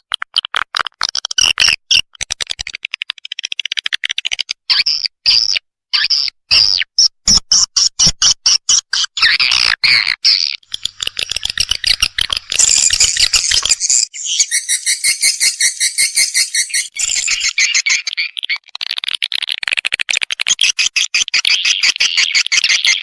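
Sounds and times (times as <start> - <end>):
swiftlets chirping and twittering: 10.6 - 18.7, 20.6 - 23.0.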